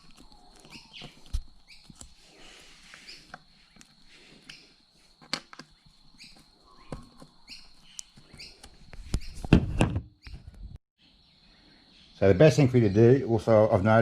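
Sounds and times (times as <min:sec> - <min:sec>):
birds chirping faintly: 0:00.0 - 0:09.5, 0:10.1 - 0:14.0.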